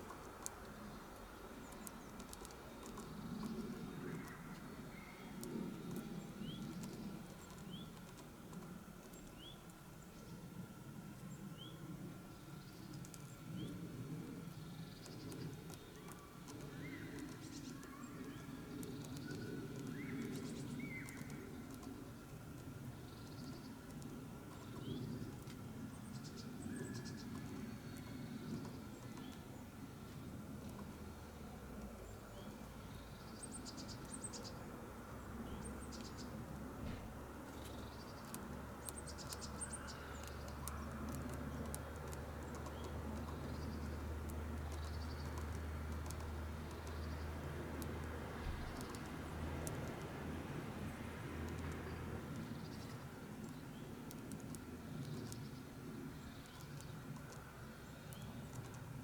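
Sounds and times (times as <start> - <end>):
small birds chirping: 0.0 - 59.0
beak tapping on seed: 1.7 - 9.5, 14.9 - 29.4, 35.5 - 55.6
beak tapping on seed shell: 37.5 - 55.5.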